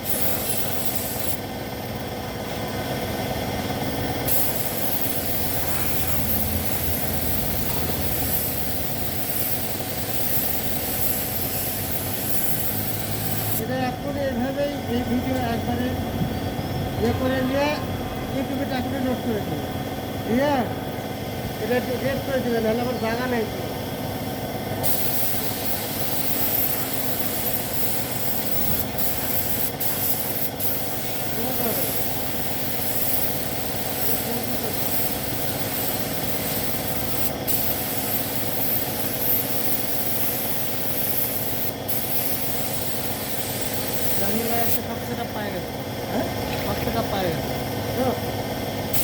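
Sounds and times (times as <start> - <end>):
paint spray gun hissing: 0.0 - 1.6, 3.7 - 14.6, 21.4 - 45.9
low mechanical hum: 0.0 - 49.0.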